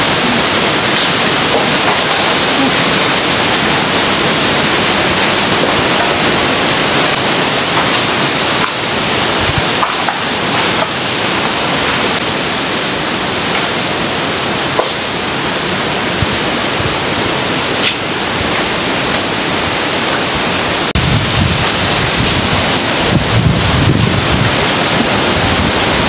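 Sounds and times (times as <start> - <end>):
wind buffeting microphone: 0.0 - 12.2, 18.3 - 26.0
wind rushing through trees: 0.0 - 26.0.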